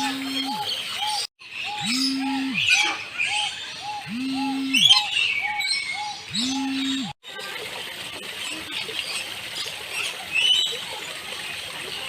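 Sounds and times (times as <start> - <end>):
low hooting call: 0.0 - 3.0, 3.8 - 7.2
birds chirping and squawking: 0.0 - 7.2.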